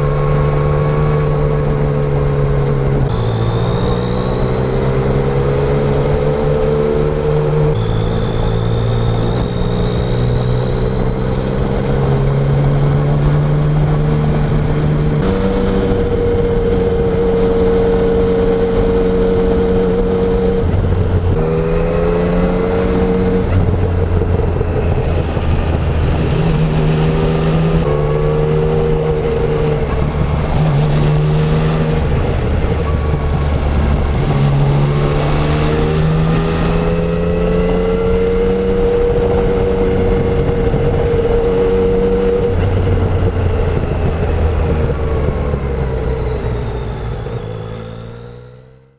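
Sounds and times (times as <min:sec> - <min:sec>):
motorcycle engine revving: 0:00.0 - 0:48.9
road and wind noise: 0:00.0 - 0:48.9.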